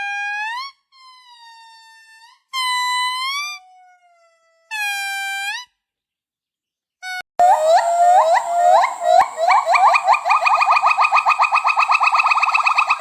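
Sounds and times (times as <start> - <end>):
primate whistle-like calls: 7.4 - 13.0.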